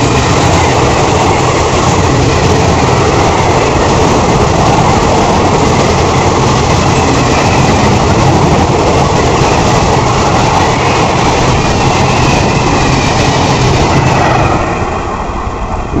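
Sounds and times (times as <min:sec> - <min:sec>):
train rolling rumble: 0:00.0 - 0:16.0.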